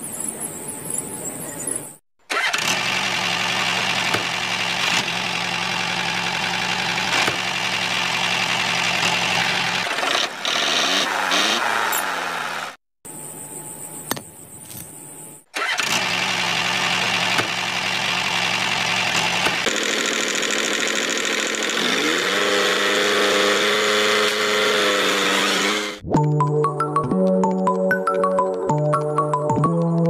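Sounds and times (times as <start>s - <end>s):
small engine running: 2.3s - 12.8s, 15.5s - 26.0s.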